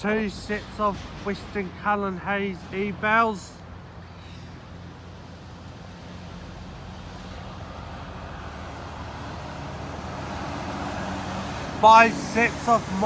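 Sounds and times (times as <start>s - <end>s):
engine hum: 0.0s - 13.0s
vehicle approaching: 0.0s - 13.0s.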